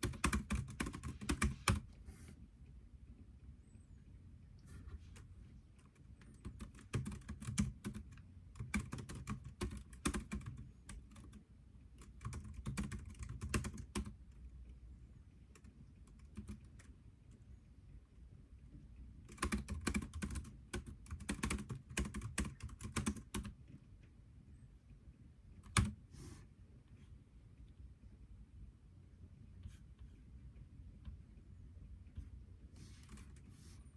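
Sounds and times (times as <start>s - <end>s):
typing on computer keyboard: 0.0s - 1.9s, 5.8s - 11.4s, 12.0s - 14.3s, 15.6s - 16.9s, 19.3s - 23.6s, 25.6s - 26.0s.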